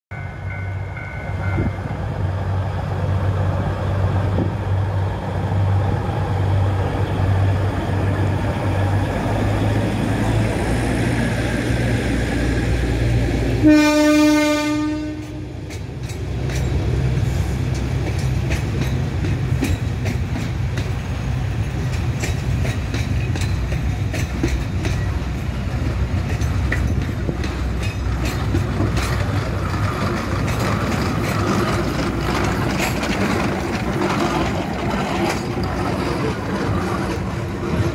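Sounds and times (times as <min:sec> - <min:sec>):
steam locomotive noise: 0:00.1 - 0:37.9
train rumbling past: 0:00.1 - 0:37.9
train horn: 0:13.6 - 0:15.6
wheels clicking over rail joints: 0:15.2 - 0:37.9.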